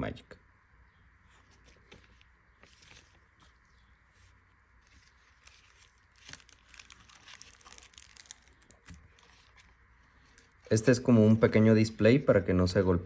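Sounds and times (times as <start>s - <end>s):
paper and cardboard rustling: 1.3s - 10.6s.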